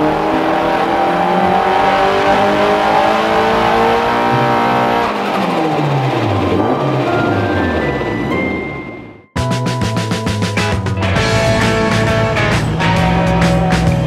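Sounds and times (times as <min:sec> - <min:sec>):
turbocharged car engine revving: 0:00.0 - 0:08.3, 0:11.0 - 0:14.0.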